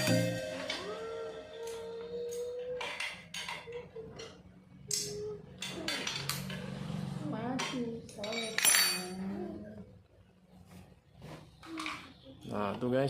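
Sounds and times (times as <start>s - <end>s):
metallic clinks of tools: 8.1s - 9.2s.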